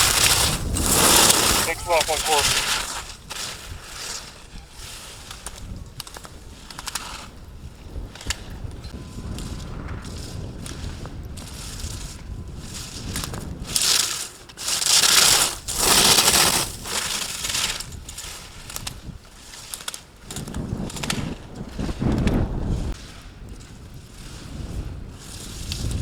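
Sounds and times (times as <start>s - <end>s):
skis scraping on hard snow: 0.0s - 4.4s, 13.8s - 18.4s.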